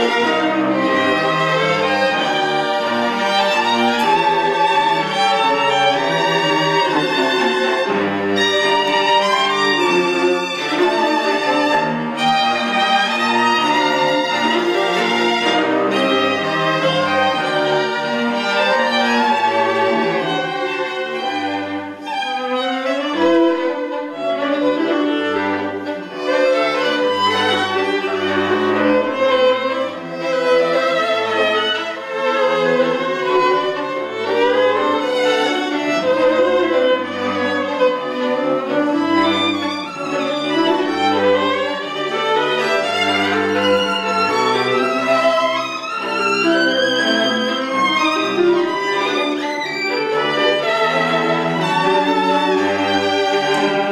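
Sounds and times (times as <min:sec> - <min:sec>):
violin melody: 0:00.0 - 0:53.9.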